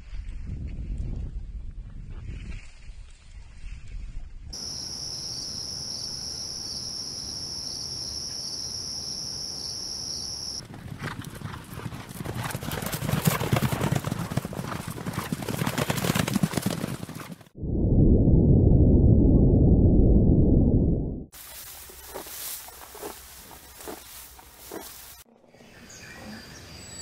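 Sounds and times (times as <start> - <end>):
horses galloping over grass: 10.6 - 17.5, 21.4 - 25.3.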